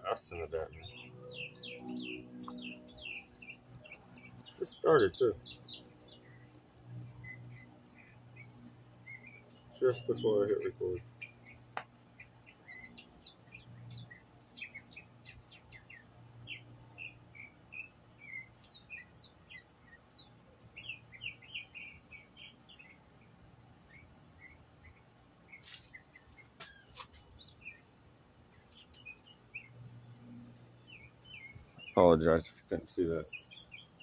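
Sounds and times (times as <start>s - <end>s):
songbird chirping: 0.0s - 34.0s
sharp clicks: 1.7s - 7.8s.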